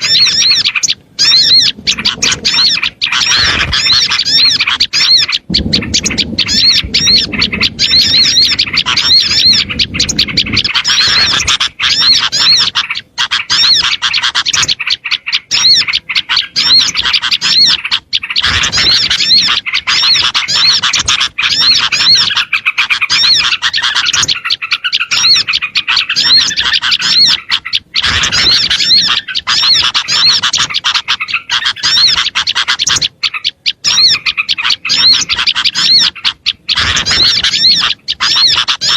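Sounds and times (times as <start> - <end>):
chorus of small songbirds chirping: 0.0 - 38.9.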